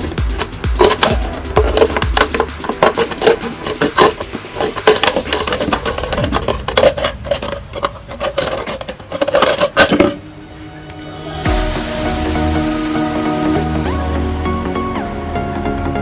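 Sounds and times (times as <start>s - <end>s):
background music: 0.0s - 7.6s, 9.7s - 16.0s
hand tools clattering and tapping: 0.0s - 10.2s.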